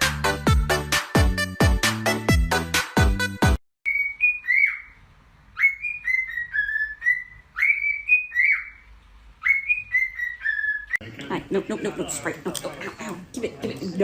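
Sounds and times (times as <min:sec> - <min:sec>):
electronic dance music: 0:00.0 - 0:03.6
parrot whistling a tune: 0:03.9 - 0:05.0, 0:05.6 - 0:08.8, 0:09.4 - 0:11.0.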